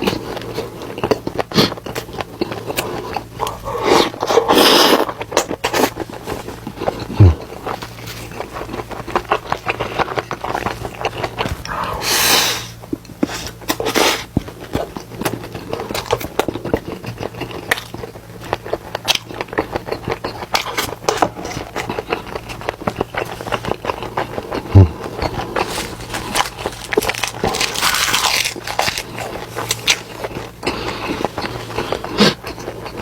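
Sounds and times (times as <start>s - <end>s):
chewing with wet clicks: 0.0s - 4.4s, 5.0s - 11.7s, 12.9s - 25.6s
steady low hum: 0.0s - 33.0s.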